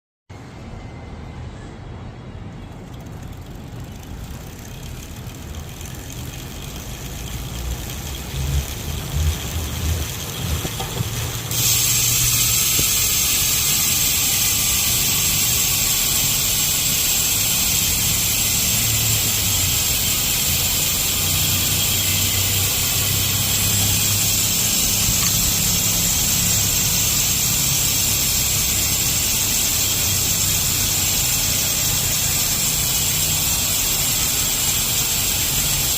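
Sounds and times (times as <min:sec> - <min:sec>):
quiet rumbling: 0:02.6 - 0:11.6
freehub ratchet buzzing: 0:02.7 - 0:35.9.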